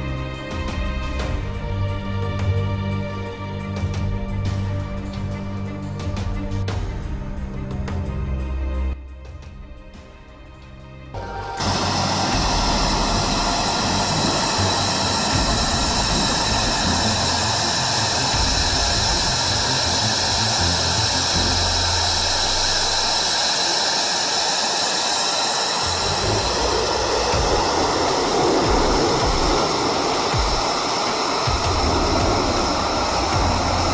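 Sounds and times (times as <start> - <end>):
faint high whine: 11.2 - 33.9
jet engine roar: 11.2 - 33.9.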